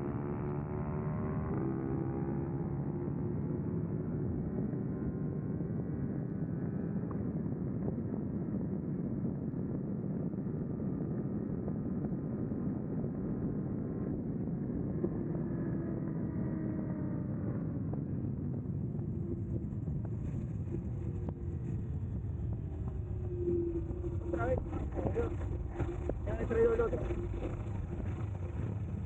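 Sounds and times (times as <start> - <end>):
wind rush on microphone: 3.3 - 29.0
motorcycle engine running: 14.9 - 29.0.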